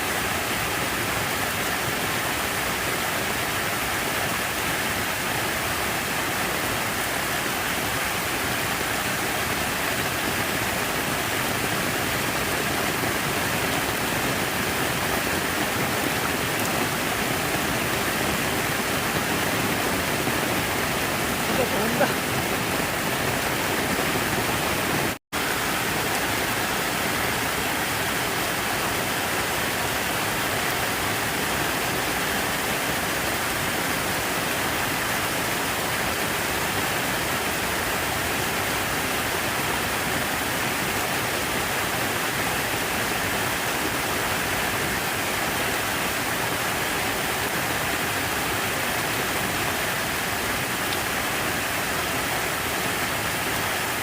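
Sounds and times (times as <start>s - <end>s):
rushing falling water: 0.0s - 54.0s.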